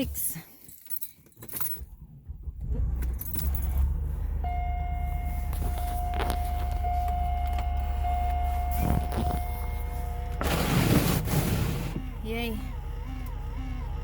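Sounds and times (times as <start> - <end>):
keys jangling: 0.6 - 1.9
car engine starting and rumbling: 1.4 - 14.0
steady high tone: 4.4 - 11.0.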